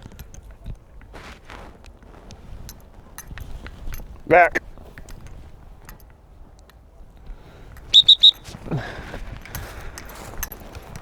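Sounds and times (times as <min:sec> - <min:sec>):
dog whistle blasts: 0:07.9 - 0:08.6.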